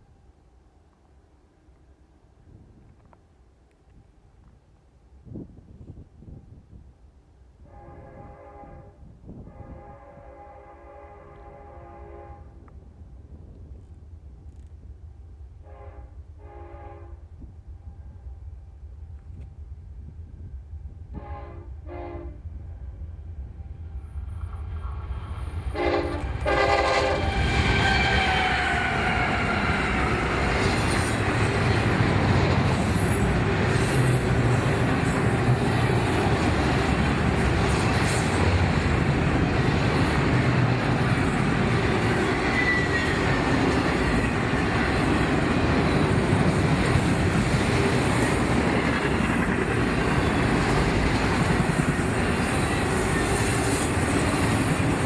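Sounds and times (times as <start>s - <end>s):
train horn: 7.6s - 12.7s, 15.6s - 18.4s, 21.1s - 24.1s, 25.6s - 31.0s
train cars rumbling with wheel clatter: 23.9s - 55.0s
faint wheel squeal: 42.4s - 43.2s.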